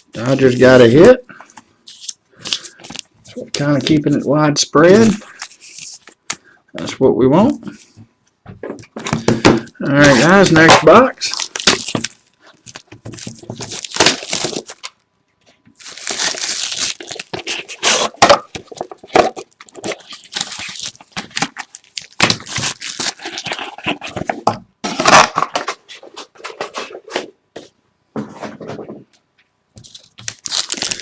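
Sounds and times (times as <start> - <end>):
packaging crinkling and tearing: 1.9 - 4.2, 9.9 - 15.0, 15.8 - 25.8, 29.8 - 31.0.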